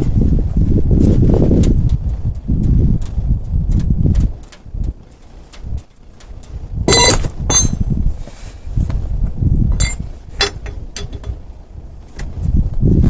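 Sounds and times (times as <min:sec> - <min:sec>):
metal tools clinking: 0:06.9 - 0:07.8, 0:09.7 - 0:11.4
sharp ringing metal clank: 0:06.9 - 0:07.8, 0:09.7 - 0:11.4.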